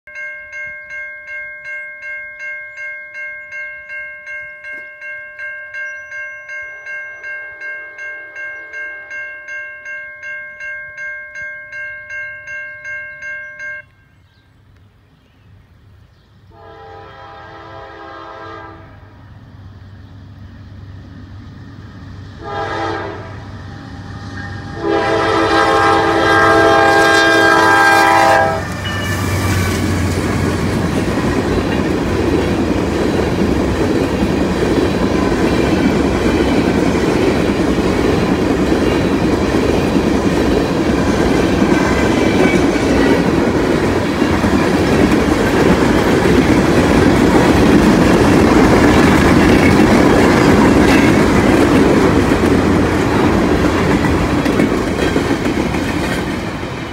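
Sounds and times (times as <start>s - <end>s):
train cars rumbling past: 15.0s - 56.9s
locomotive horn blasts: 16.5s - 19.2s, 22.4s - 29.4s
wheels clacking on rail joints: 24.4s - 56.9s.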